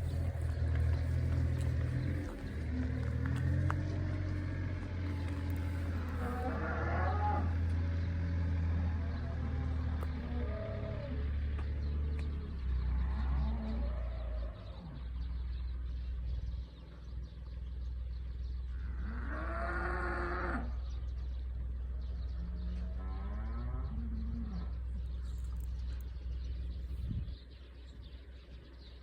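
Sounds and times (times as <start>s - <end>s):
low hum: 0.0s - 19.2s
cattle mooing: 5.1s - 7.6s, 18.8s - 20.8s, 22.4s - 24.8s.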